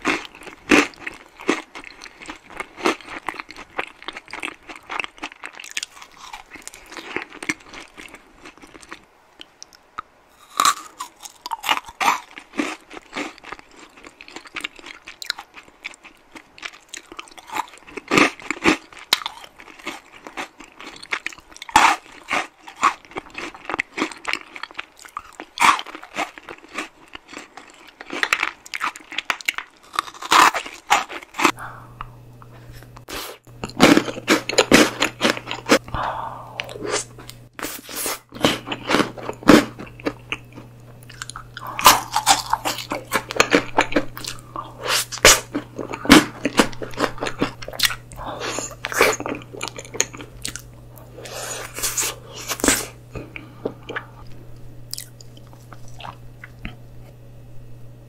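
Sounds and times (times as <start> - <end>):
crunching and chewing: 0.0 - 35.9, 36.6 - 57.2
faint low hum: 29.8 - 58.0.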